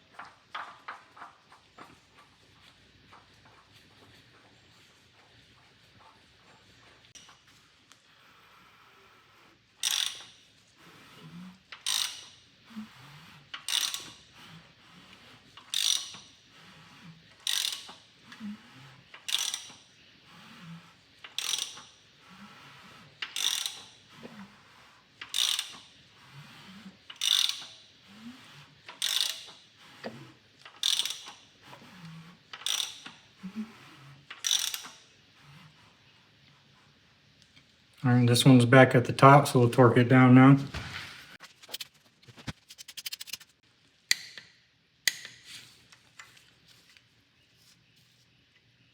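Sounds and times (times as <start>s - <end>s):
socket ratchet clicking: 9.8s - 10.3s, 11.8s - 12.3s, 13.6s - 14.2s, 15.7s - 16.3s, 17.5s - 18.0s, 19.3s - 19.8s, 21.4s - 21.9s, 23.2s - 23.9s, 25.3s - 25.8s, 29.0s - 29.5s, 30.8s - 31.4s, 32.6s - 33.1s, 34.3s - 35.0s.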